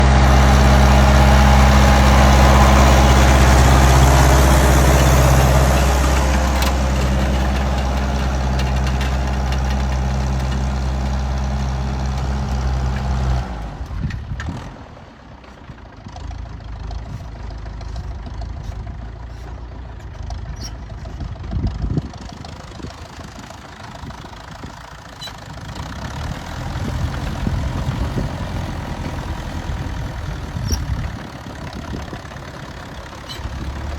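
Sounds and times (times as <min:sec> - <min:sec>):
tractor engine running: 0:00.0 - 0:33.9
uneven rumble: 0:16.7 - 0:33.9.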